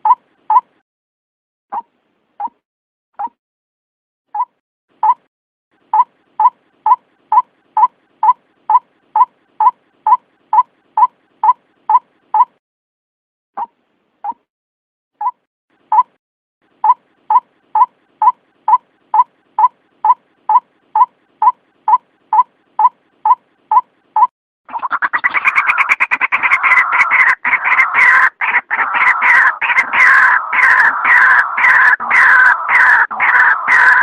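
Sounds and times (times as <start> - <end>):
waterhen calling: 24.7 - 34.0.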